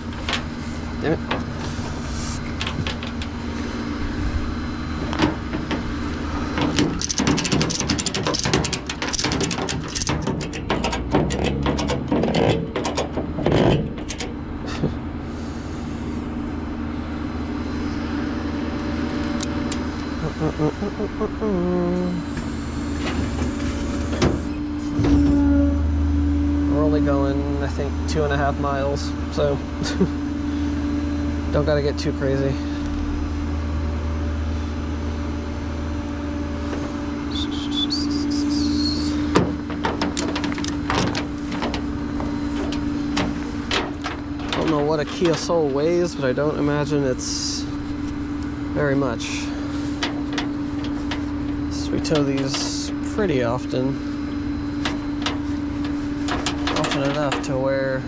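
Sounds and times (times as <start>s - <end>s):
clicks and knocks: 0.0s - 0.6s, 1.2s - 3.4s, 5.0s - 14.9s, 39.3s - 45.6s, 54.8s - 57.5s
truck engine running: 0.0s - 58.0s
high squeal: 37.3s - 39.3s.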